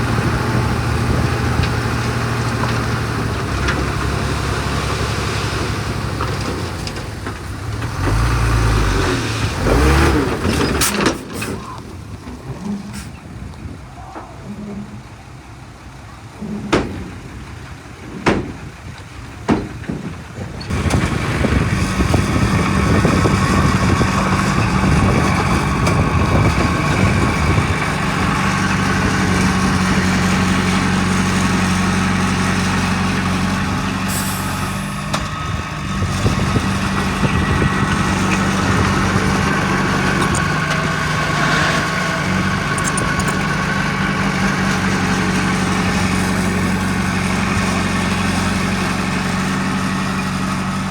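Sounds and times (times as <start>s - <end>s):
heavy diesel engine running: 0.0s - 13.8s, 14.4s - 50.9s
sharp knocks: 18.2s - 18.6s.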